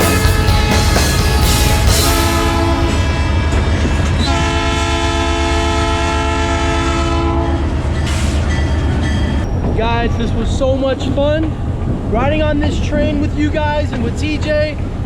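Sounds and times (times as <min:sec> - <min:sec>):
train horn blasts: 0:00.0 - 0:07.9
train rumbling on rails: 0:00.0 - 0:15.0.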